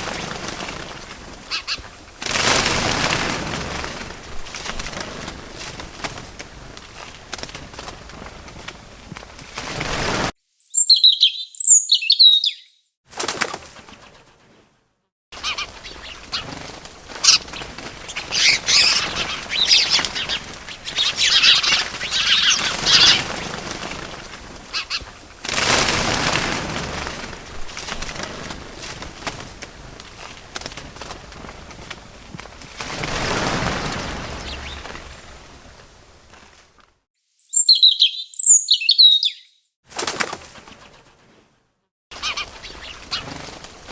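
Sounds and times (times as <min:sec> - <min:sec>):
small birds chirping: 0:00.0 - 0:02.1, 0:10.4 - 0:12.9, 0:15.4 - 0:25.3, 0:33.4 - 0:35.4, 0:37.2 - 0:39.7, 0:42.2 - 0:43.6
wings flapping: 0:00.0 - 0:10.3, 0:13.1 - 0:14.7, 0:15.4 - 0:37.0, 0:39.9 - 0:43.9.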